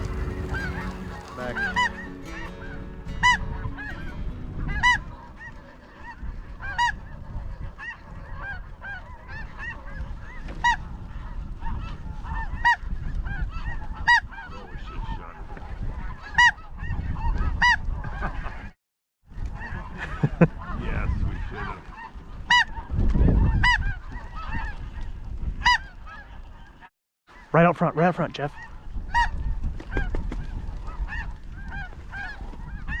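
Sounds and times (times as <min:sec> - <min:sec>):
geese honking: 0:00.0 - 0:12.8, 0:19.6 - 0:25.0, 0:30.6 - 0:33.0
wind on microphone: 0:00.0 - 0:26.9, 0:28.6 - 0:33.0.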